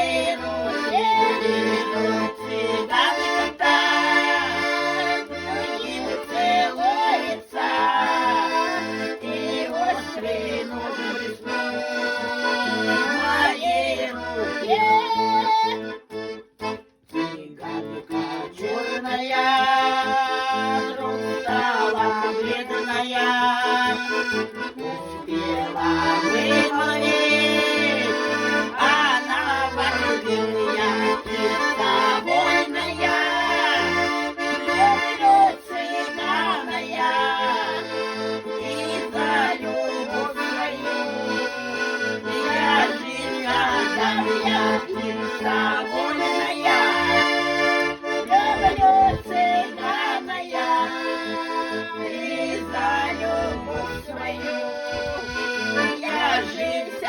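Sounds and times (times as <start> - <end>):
accordion melody: 0.0 - 57.0
rhythmic bass: 52.2 - 56.8.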